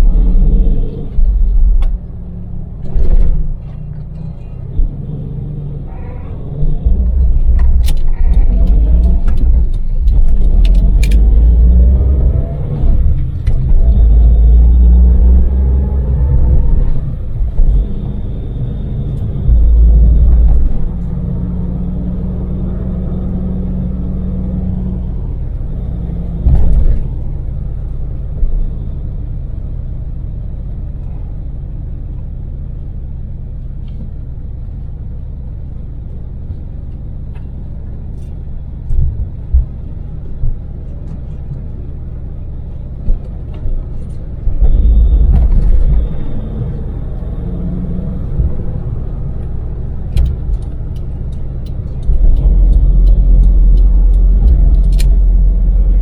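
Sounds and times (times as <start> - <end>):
road rumble: 0.0 - 56.0
small van engine running: 0.0 - 56.0
low thumps: 6.5 - 18.6, 19.2 - 21.2, 44.4 - 47.4, 48.1 - 56.0.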